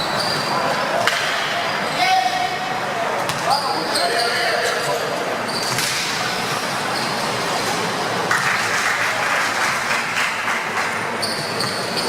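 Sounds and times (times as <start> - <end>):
spectators applauding: 8.2 - 11.2.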